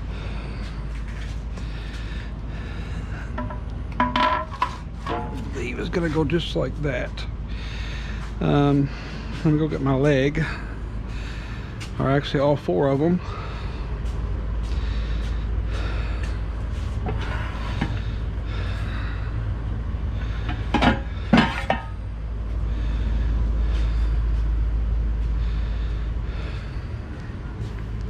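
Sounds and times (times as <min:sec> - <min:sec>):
breathing: 0:00.0 - 0:03.6, 0:07.5 - 0:09.5, 0:10.4 - 0:12.0, 0:13.2 - 0:28.0
low steady rumble: 0:00.0 - 0:28.0
metal legs knocking together: 0:03.4 - 0:05.5, 0:20.5 - 0:22.0.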